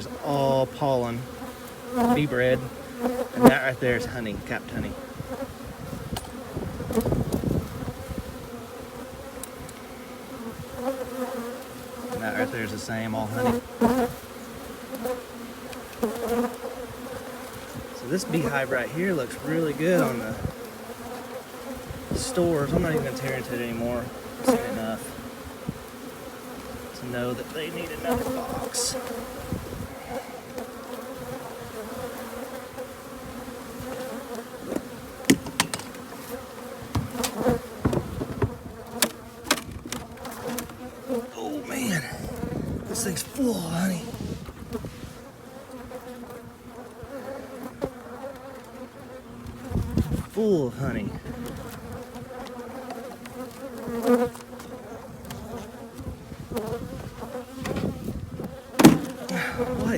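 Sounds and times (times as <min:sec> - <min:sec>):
honeybees buzzing: 0:00.0 - 0:59.9
sharp clicks and knocks: 0:35.3 - 0:36.0.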